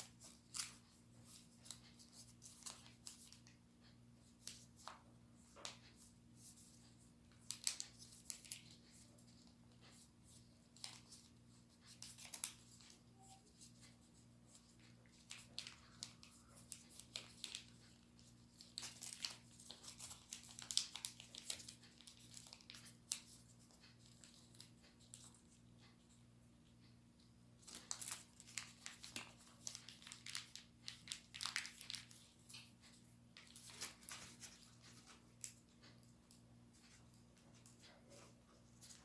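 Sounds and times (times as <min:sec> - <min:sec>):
paper being folded and creased: 0:11.8 - 0:25.2, 0:27.6 - 0:32.7.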